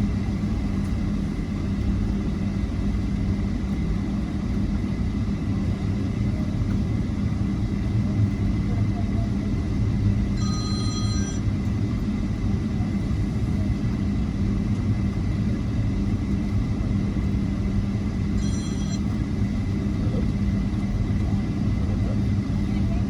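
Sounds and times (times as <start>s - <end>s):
high electronic rings: 10.4s - 11.5s, 18.4s - 19.2s.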